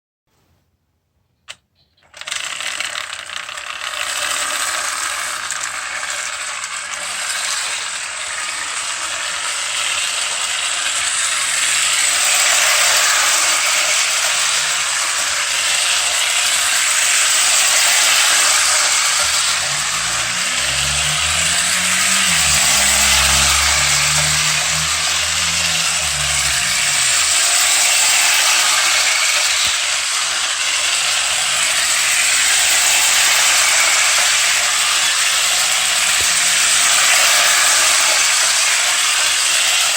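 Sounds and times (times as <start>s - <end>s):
toy train motor rattle: 1.5s - 39.9s
low hum: 16.6s - 29.4s.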